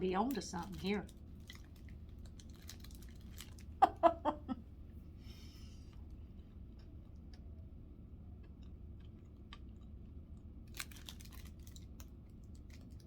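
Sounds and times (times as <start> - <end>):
low steady hum: 0.0 - 13.0
faint chewing: 0.6 - 3.8, 8.4 - 13.0.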